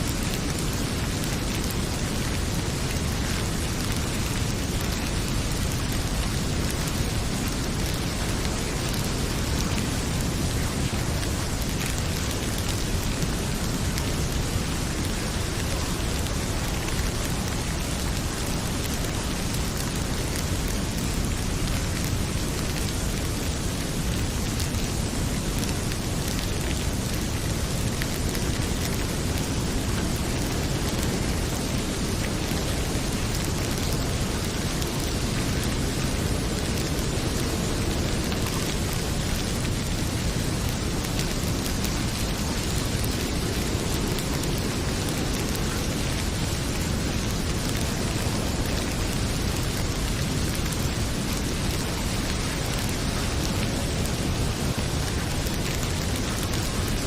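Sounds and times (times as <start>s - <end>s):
heavy rain pouring: 0.0s - 57.0s
wood fire crackling: 0.1s - 57.0s.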